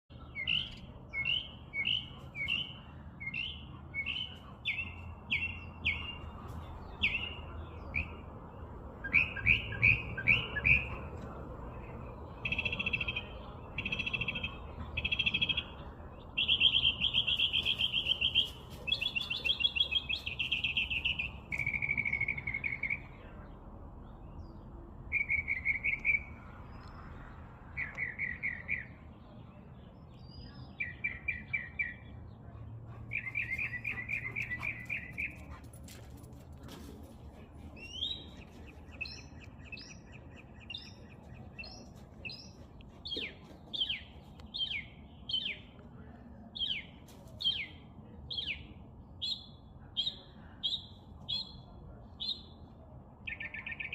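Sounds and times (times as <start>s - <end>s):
songbird singing trills: 0.1s - 8.2s, 9.0s - 11.2s, 11.8s - 32.2s.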